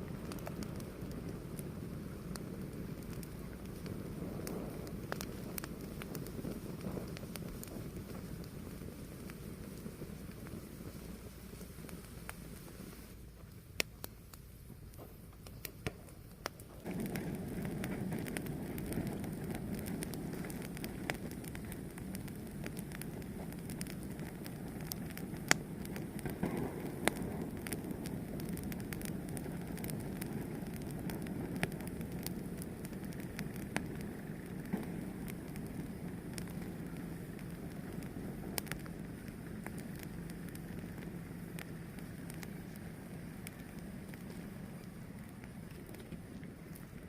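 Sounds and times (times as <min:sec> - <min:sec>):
fire crackling and popping: 0:00.0 - 0:47.0
rush of flames: 0:00.0 - 0:47.0.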